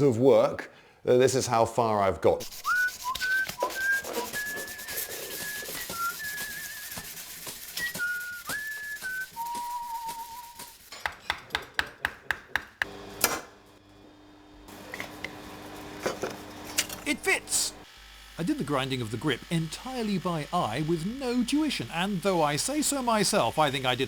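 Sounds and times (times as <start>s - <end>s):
person whistling a tune: 2.6s - 7.1s, 7.8s - 10.7s.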